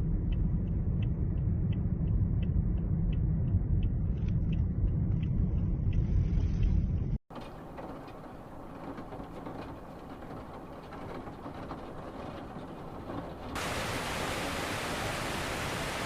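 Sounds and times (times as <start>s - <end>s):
traffic rumble: 0.0s - 16.0s
rain: 7.3s - 16.0s
pouring rainwater hiss: 13.6s - 16.0s.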